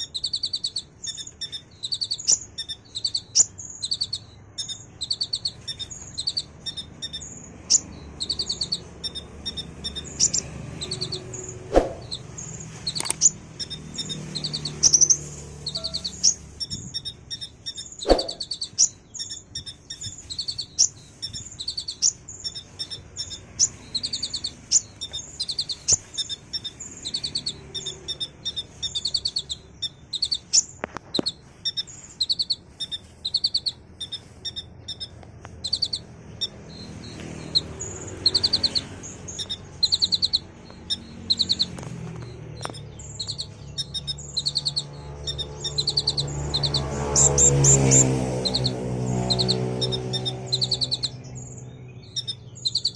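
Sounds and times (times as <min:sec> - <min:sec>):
bird singing high chirping trills: 0:00.0 - 0:52.9
sharp clicks: 0:00.3 - 0:15.1, 0:38.3 - 0:44.9.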